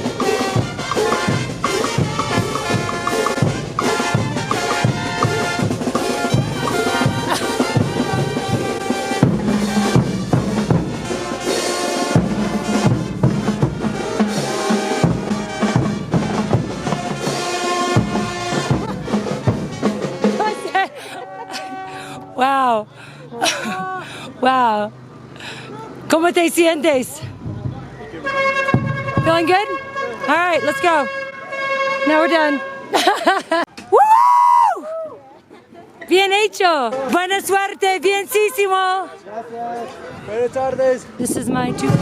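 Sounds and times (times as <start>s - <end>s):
bass drum and snare beat: 0.0s - 20.6s, 27.2s - 29.6s, 41.2s - 42.0s
trumpets playing: 0.0s - 22.7s, 28.2s - 33.1s.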